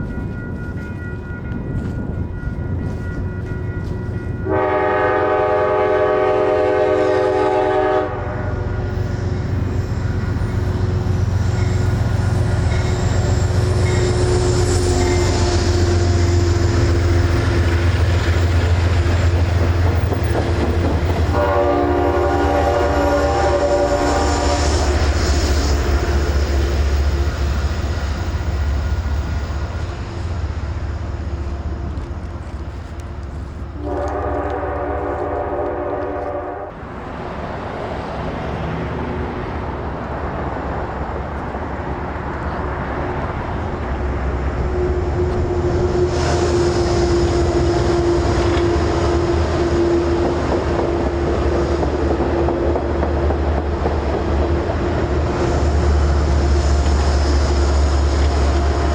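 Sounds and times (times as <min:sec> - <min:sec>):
multi-chime train horn: 0:00.0 - 0:19.4, 0:20.7 - 0:30.3, 0:33.8 - 0:36.8, 0:44.6 - 0:51.4
train heavy low rumble: 0:00.0 - 0:58.9.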